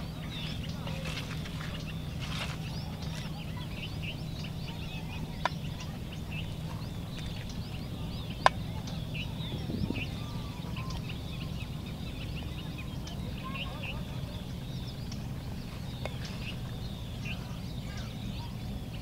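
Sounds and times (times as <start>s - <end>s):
small birds chirping: 0.0s - 19.0s
steady low hum: 0.0s - 19.0s.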